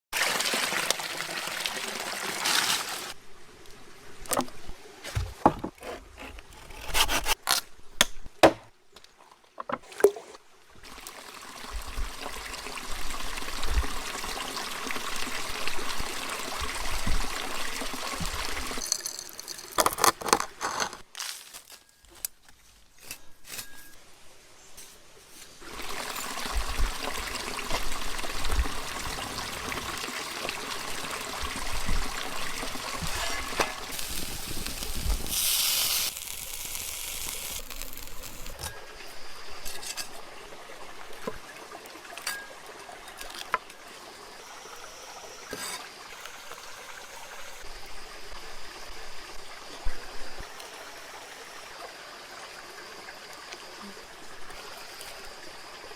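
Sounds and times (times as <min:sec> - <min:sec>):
running trickling water: 0:09.2 - 0:19.9, 0:25.6 - 0:47.8.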